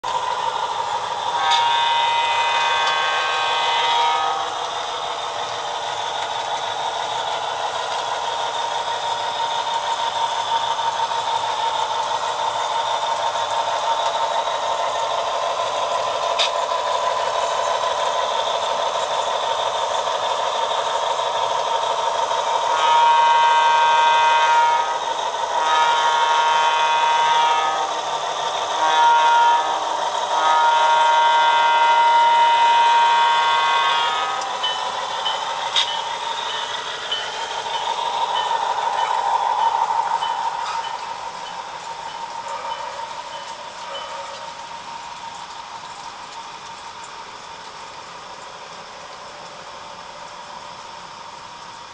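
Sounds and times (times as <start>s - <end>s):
model train diesel engine sound: 0.0s - 51.9s
diesel horn through small speaker: 1.3s - 4.6s, 22.7s - 25.0s, 25.6s - 27.9s, 28.8s - 34.6s.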